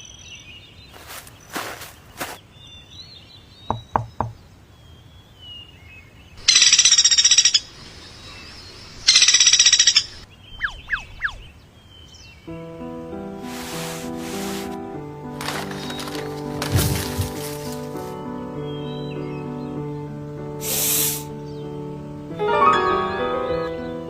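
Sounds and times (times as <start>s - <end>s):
woodpecker drumming: 3.7s - 4.4s, 6.4s - 7.8s, 9.0s - 11.5s.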